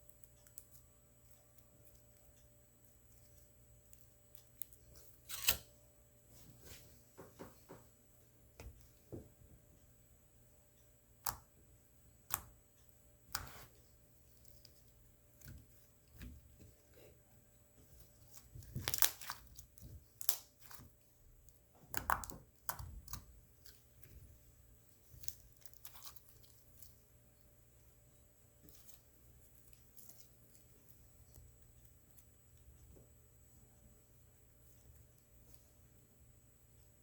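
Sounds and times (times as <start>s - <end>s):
slime squished by hand: 18.2s - 21.0s.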